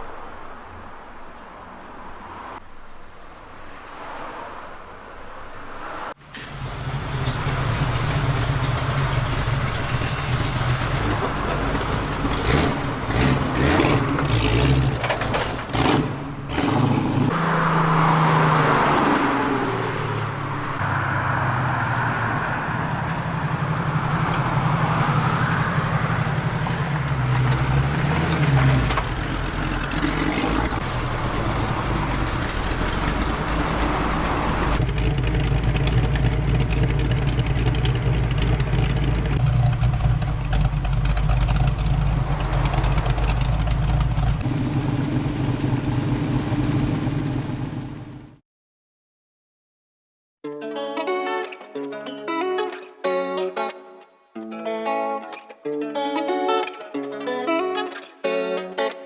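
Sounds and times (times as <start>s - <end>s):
motorcycle engine revving: 6.2s - 48.4s.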